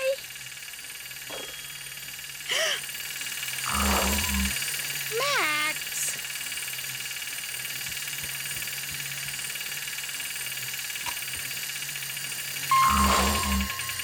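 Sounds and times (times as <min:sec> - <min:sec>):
electronic beep-like tone: 0:12.7 - 0:14.0.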